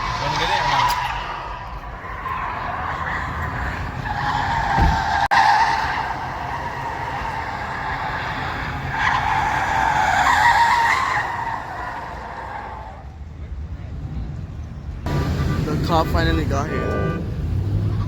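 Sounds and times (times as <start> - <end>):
tyre and road noise: 0.0 - 18.0.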